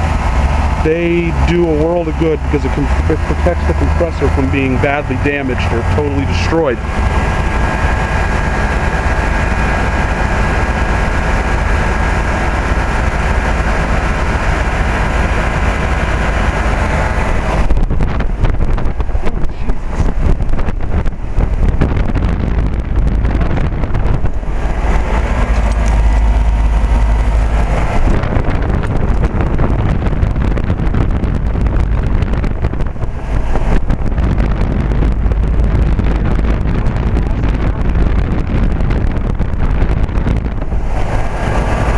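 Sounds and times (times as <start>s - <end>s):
heat pump humming: 0.0s - 41.9s
wind buffeting microphone: 0.0s - 41.9s.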